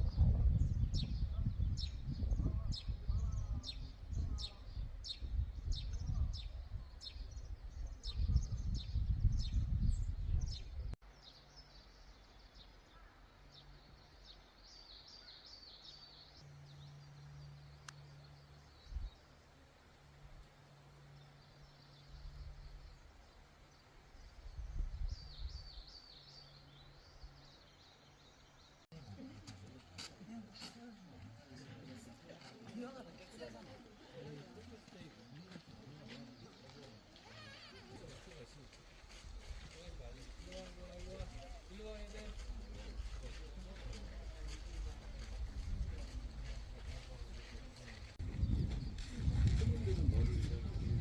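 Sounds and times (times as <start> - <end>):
birds chirping: 0.1 - 51.0
low steady hum: 16.4 - 25.1
loud low rumble: 48.2 - 51.0.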